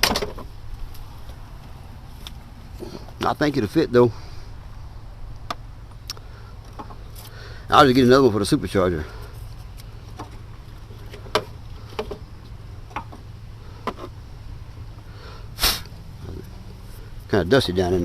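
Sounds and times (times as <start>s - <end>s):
steady low hum: 0.0s - 18.0s
light clicks and knocks of parts: 5.4s - 7.4s, 9.0s - 14.2s.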